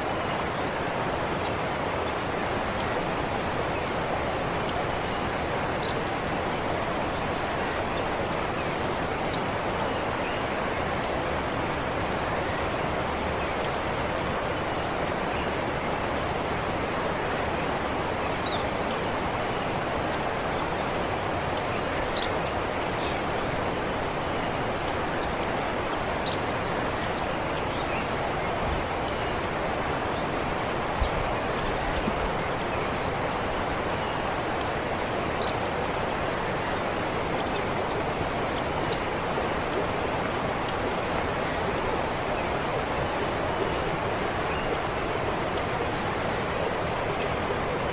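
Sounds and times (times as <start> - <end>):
stream flowing: 0.0 - 47.9
small birds chirping: 17.3 - 44.8.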